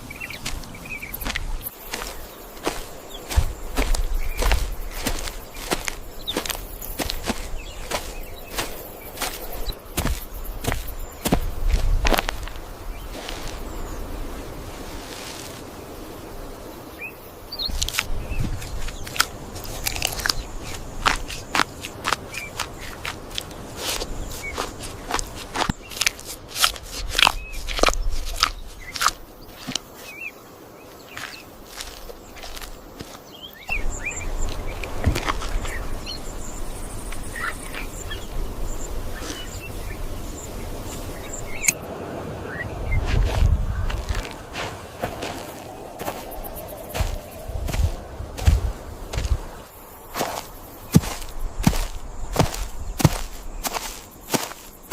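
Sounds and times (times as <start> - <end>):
sharp cracks and crunches: 17.7 - 29.9.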